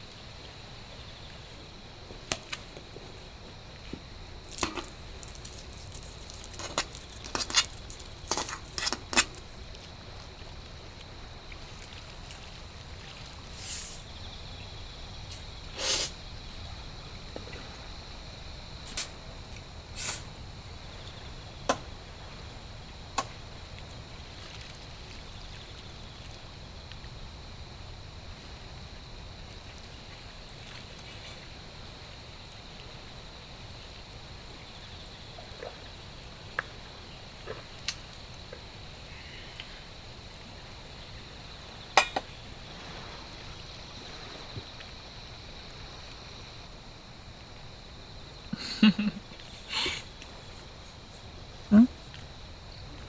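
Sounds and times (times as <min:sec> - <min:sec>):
low background hiss: 0:00.0 - 0:53.0
rain hissing: 0:13.4 - 0:14.1, 0:15.7 - 0:16.2, 0:19.9 - 0:20.3.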